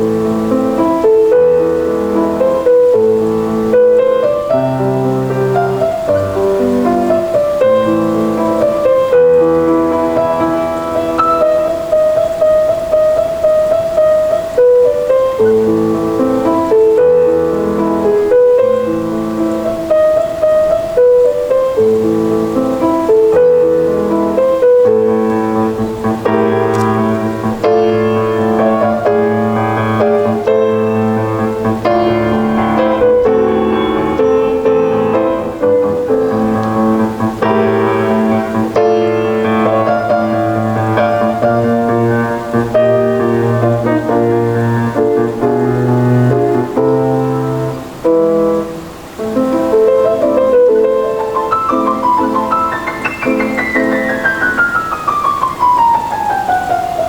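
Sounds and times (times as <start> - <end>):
solo piano piece: 0.0 - 57.0.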